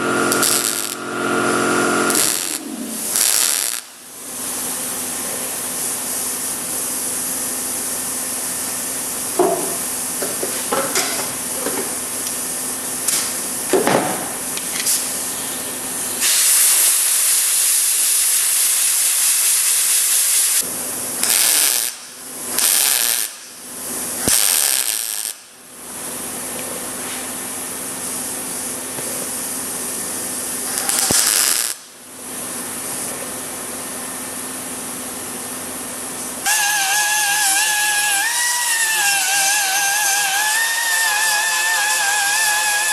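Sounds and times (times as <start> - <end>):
tack-weld bursts: 0.0 - 1.1, 2.1 - 3.9, 16.2 - 20.6, 21.2 - 23.6, 24.2 - 25.4, 30.8 - 31.9, 36.4 - 42.9
welding arc hiss: 0.0 - 33.3, 34.1 - 42.9
shop hum and hiss: 0.0 - 42.9.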